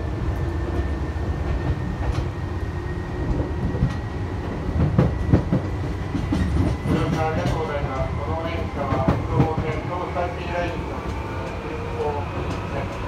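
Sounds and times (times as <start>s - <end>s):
train wheels and motors rumbling: 0.0s - 13.0s
rail-joint clacks: 3.3s - 13.0s.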